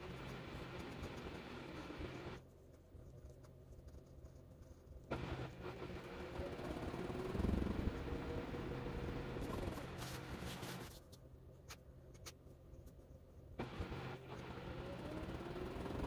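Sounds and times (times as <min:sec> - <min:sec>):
washing machine motor whirring: 0:00.0 - 0:02.4, 0:05.1 - 0:10.8, 0:13.6 - 0:16.0.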